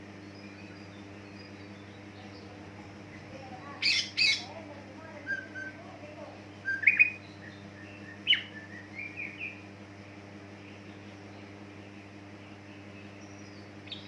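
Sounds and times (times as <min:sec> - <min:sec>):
steady low hum: 0:00.0 - 0:14.0
bird whistling and chirping: 0:00.2 - 0:02.1, 0:05.2 - 0:05.8, 0:06.6 - 0:09.6, 0:13.0 - 0:14.0.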